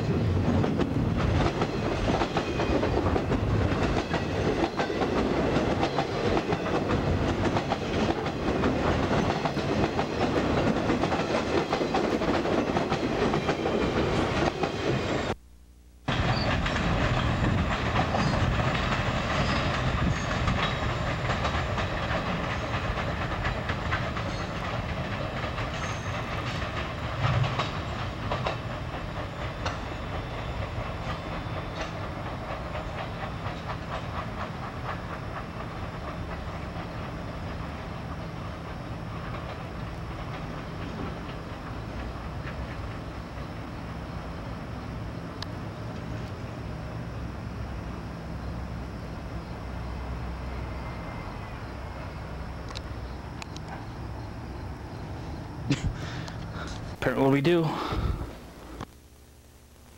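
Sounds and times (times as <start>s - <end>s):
wheels clicking over rail joints: 0.0s - 14.9s, 16.1s - 43.8s
freight train rolling past: 0.0s - 15.4s, 16.1s - 58.8s.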